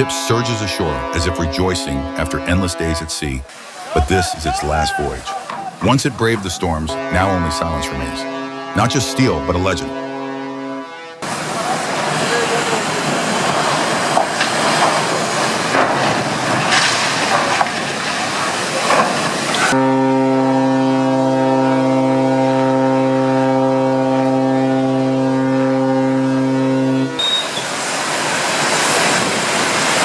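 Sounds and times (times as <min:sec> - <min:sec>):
ship's horn blast: 0:00.0 - 0:12.9, 0:19.6 - 0:27.7.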